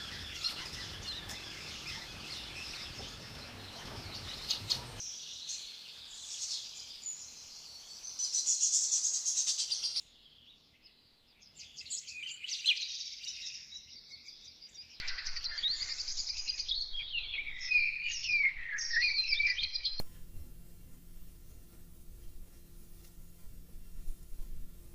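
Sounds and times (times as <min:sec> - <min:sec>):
small birds chirping and singing: 0:00.0 - 0:21.0.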